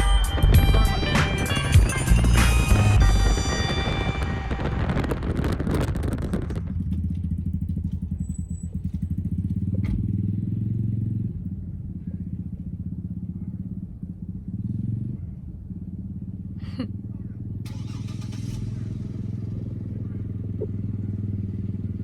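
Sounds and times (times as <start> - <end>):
dirt bike engine idling: 6.7 - 18.0, 18.6 - 22.0.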